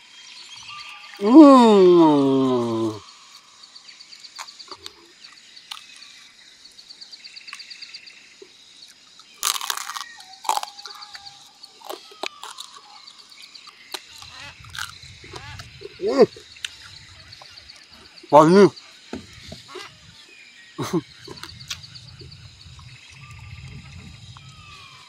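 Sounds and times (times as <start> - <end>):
chewing and crunching meat: 4.4 - 5.1, 5.7 - 6.2, 9.1 - 18.2, 20.8 - 25.0.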